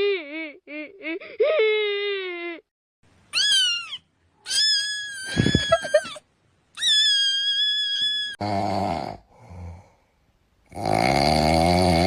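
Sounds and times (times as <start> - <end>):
cat meowing: 3.3 - 6.2, 6.8 - 8.4.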